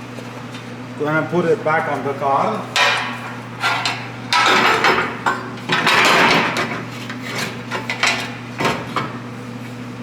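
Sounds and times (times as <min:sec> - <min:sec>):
metal knocks and scraping: 0:02.8 - 0:08.9.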